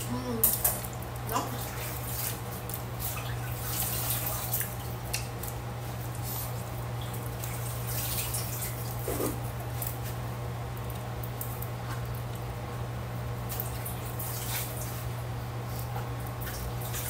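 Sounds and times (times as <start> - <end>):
steady low hum: 0.0 - 17.0
person chewing wetly: 0.6 - 5.5.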